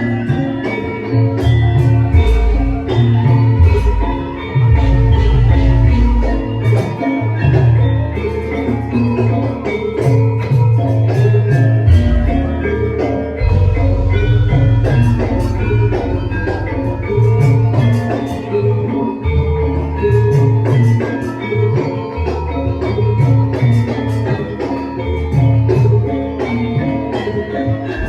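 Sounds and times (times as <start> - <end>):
metallophones and gongs ringing: 0.0 - 28.0.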